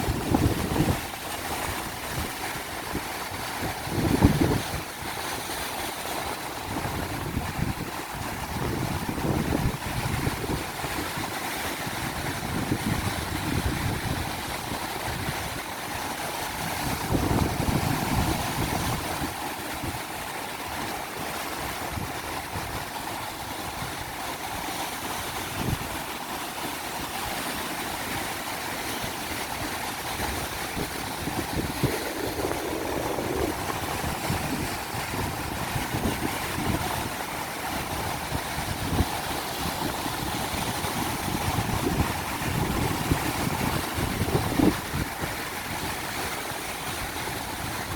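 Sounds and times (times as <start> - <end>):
wind buffeting microphone: 0.0 - 5.2, 6.4 - 20.9, 21.6 - 26.0, 29.0 - 47.9
ocean surf breaking: 0.0 - 47.9.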